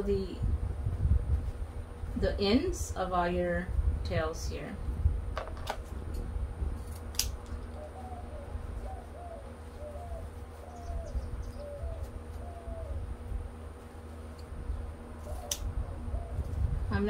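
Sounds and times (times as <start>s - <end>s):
scissors snip: 6.9s - 7.5s, 15.2s - 15.7s
bird cooing: 7.7s - 13.1s, 15.2s - 16.6s.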